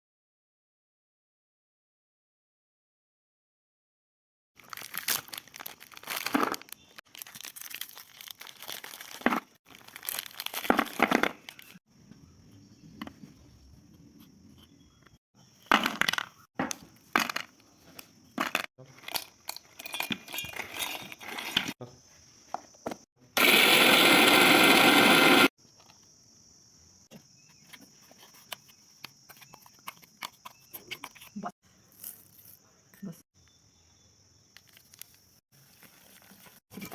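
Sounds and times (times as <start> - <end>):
packaging crinkling and tearing: 4.6 - 11.8
utensils and dishes clinking: 18.4 - 21.8.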